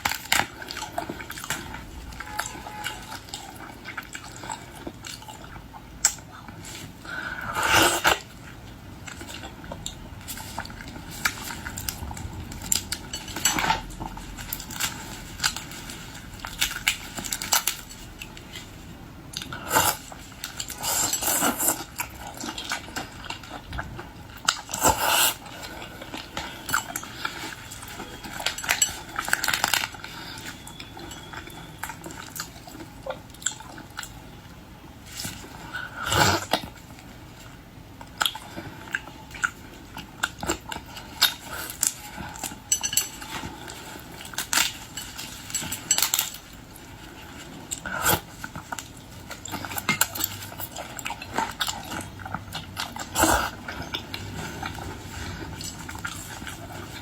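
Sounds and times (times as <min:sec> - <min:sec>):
chewing: 0:00.0 - 0:57.0
dishes and shells clinking: 0:26.3 - 0:32.6, 0:41.4 - 0:46.6.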